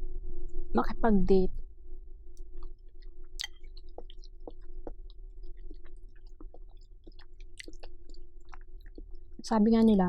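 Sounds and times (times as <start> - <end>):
faint steady hum: 0.0 - 10.0
soft chewing with mouth clicks: 2.3 - 10.0.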